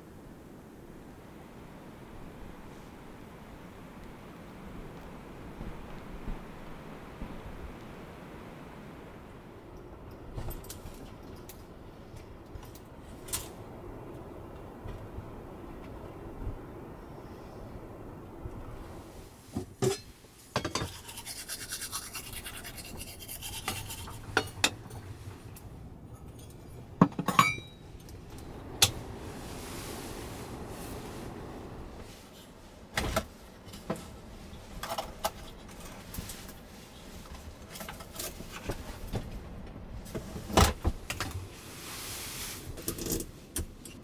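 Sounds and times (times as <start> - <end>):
brushing or rustling: 18.9 - 25.5, 29.0 - 34.1, 41.4 - 43.6.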